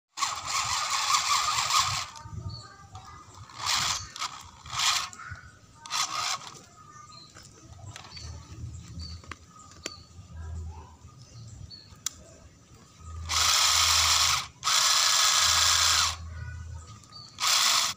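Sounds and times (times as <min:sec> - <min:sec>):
electric motor gearbox whirring: 0:00.2 - 0:02.2, 0:03.4 - 0:05.2, 0:05.8 - 0:06.6, 0:13.2 - 0:16.2, 0:17.2 - 0:17.9.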